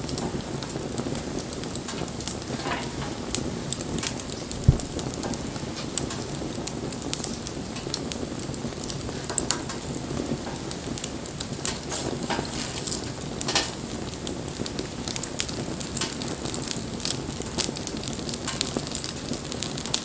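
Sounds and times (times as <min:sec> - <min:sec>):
bonfire flames rushing: 0:00.0 - 0:20.0
fire crackling and popping: 0:00.0 - 0:20.0
dull thump: 0:04.6 - 0:05.0.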